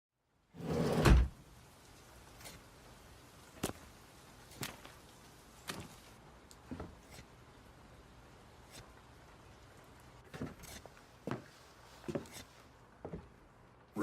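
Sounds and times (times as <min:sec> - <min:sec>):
door opening with thump: 0:00.8 - 0:01.4
footsteps: 0:10.3 - 0:13.3.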